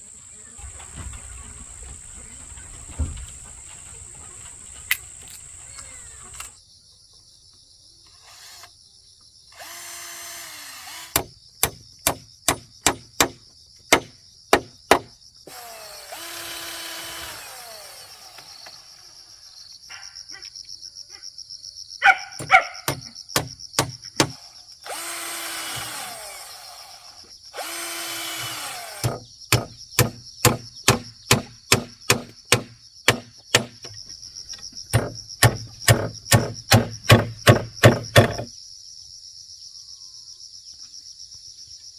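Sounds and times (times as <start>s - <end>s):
power drill: 8.2s - 8.7s, 9.5s - 11.3s, 15.5s - 19.1s, 24.2s - 29.2s
hammer blows on wood: 34.9s - 38.5s.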